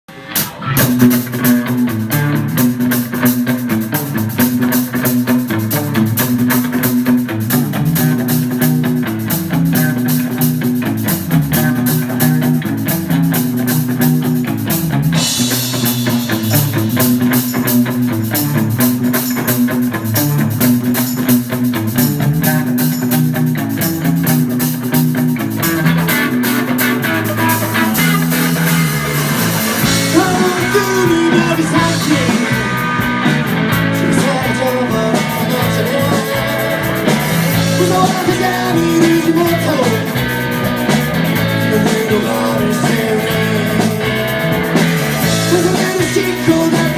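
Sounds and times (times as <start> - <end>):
rock band playing instrumental: 0.1 - 46.9
cymbals: 15.2 - 19.7.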